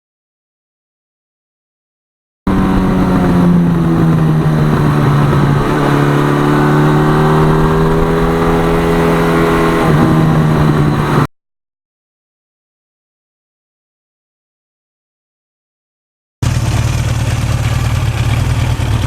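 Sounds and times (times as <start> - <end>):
motorcycle engine running: 2.5 - 11.3, 16.4 - 19.0.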